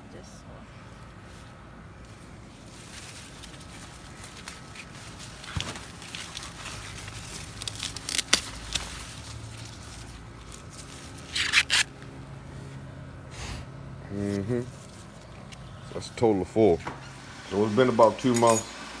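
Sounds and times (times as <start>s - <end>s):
corn leaves rustling and crackling: 1.1s - 12.2s
tearing rustle: 2.2s - 12.1s
stalk snapping: 3.3s - 12.1s.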